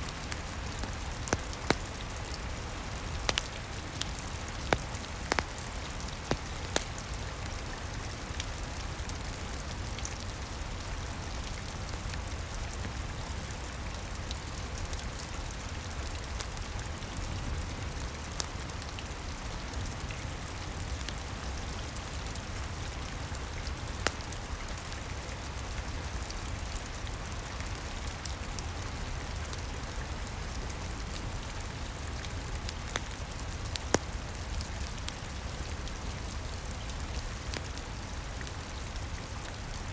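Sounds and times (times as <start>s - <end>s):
wood fire popping: 0.0s - 7.9s
steady rain: 0.0s - 39.9s.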